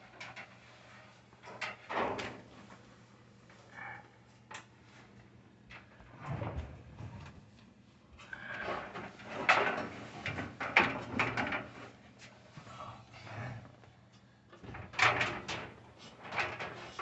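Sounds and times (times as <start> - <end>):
scraping rubbing and knocking: 15.0 - 17.0.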